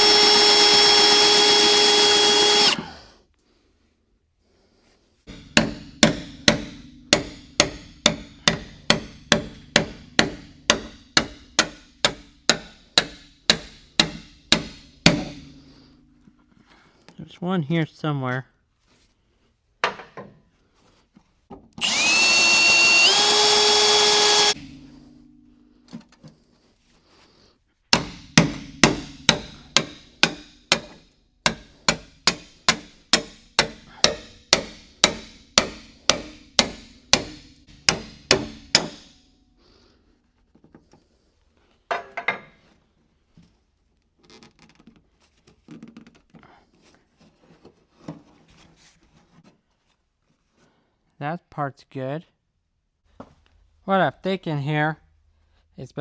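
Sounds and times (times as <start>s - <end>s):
power drill drilling metal: 0.0s - 3.1s, 21.8s - 24.6s
hammer striking metal: 5.3s - 15.6s, 24.5s - 25.7s, 27.9s - 39.3s.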